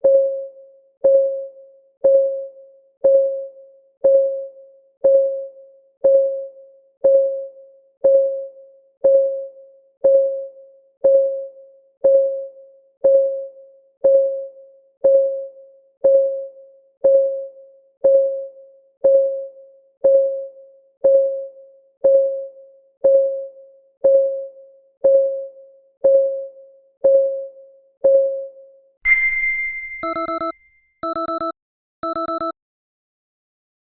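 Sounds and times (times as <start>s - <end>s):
high chime: 29.1s - 31.2s
alarm beeps: 29.1s - 32.5s
clock ticking: 30.0s - 32.5s.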